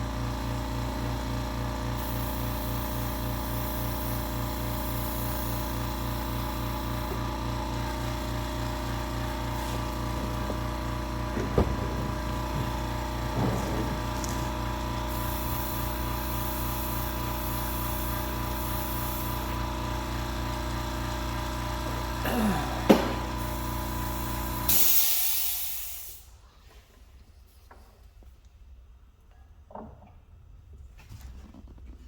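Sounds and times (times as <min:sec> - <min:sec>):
air compressor humming: 0:00.0 - 0:26.3
airbrush hissing: 0:02.0 - 0:07.1, 0:15.0 - 0:19.6
loud air hiss: 0:13.9 - 0:19.5, 0:22.3 - 0:26.4.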